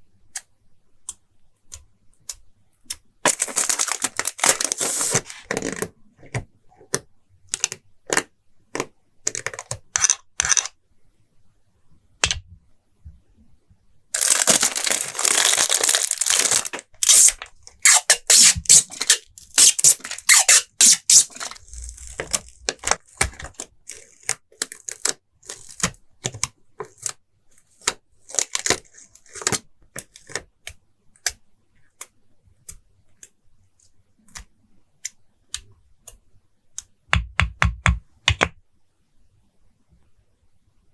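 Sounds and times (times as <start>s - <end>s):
stickers peeled from paper: 3.3s - 5.6s, 14.2s - 23.0s
taps and clicks of paper: 34.3s - 38.6s.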